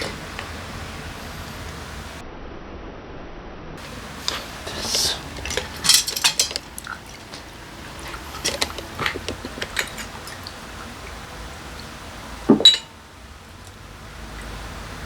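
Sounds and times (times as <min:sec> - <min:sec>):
small metal parts clinking: 0:03.8 - 0:07.5.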